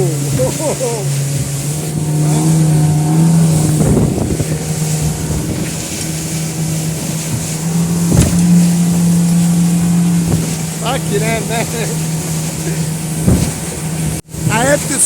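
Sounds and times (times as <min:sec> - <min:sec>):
outboard engine hum: 0:00.0 - 0:15.0
rush of wind and water: 0:00.0 - 0:15.0
thumps: 0:08.0 - 0:08.6.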